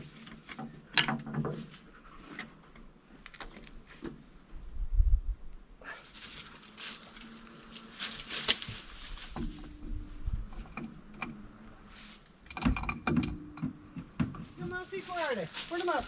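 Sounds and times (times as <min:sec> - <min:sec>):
small metal pieces jingling: 0:06.2 - 0:09.0
knocks and thumps: 0:12.6 - 0:14.8.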